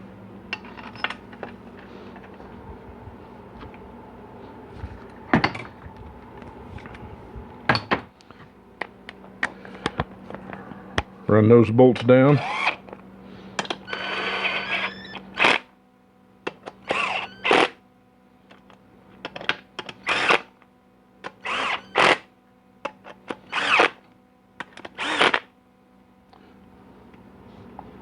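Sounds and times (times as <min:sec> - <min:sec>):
cordless drill spinning: 0:12.4 - 0:13.0, 0:13.7 - 0:15.6, 0:16.8 - 0:17.7, 0:20.0 - 0:20.5, 0:21.4 - 0:22.2, 0:23.4 - 0:24.0, 0:24.8 - 0:25.5.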